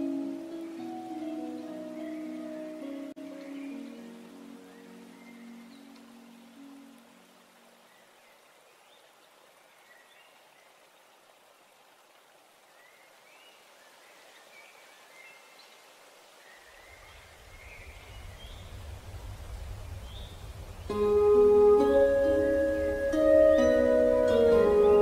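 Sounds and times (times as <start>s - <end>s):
water-like hiss: 9.6s - 25.0s
low rumble: 17.4s - 21.1s.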